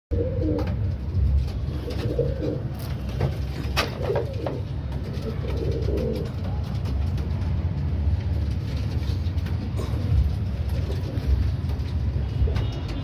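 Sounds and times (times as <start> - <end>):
pigeons cooing: 0.1 - 6.9, 9.7 - 13.0.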